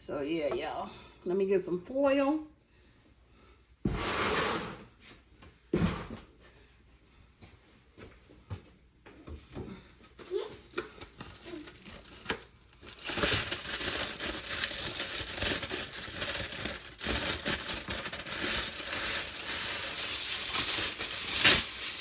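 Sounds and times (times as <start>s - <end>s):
aluminium foil crinkling: 10.2s - 22.0s.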